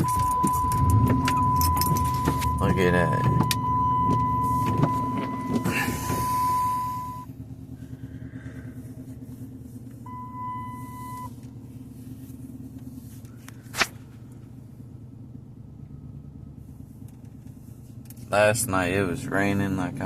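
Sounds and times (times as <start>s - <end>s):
high electronic warning tone: 0.0s - 7.3s, 10.1s - 11.3s
car engine idling: 0.0s - 20.0s.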